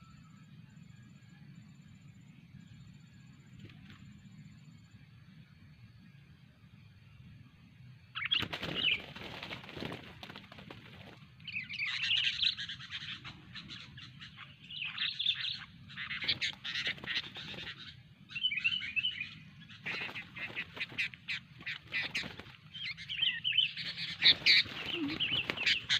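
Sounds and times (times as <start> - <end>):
bird chattering calls: 11.5 - 25.9.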